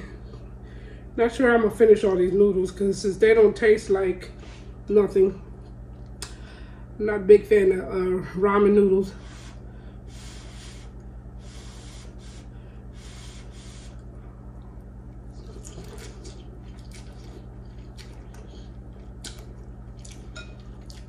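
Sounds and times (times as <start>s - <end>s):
low electrical hum: 0.0s - 21.0s
chewing and wet mouth sounds: 13.9s - 21.0s.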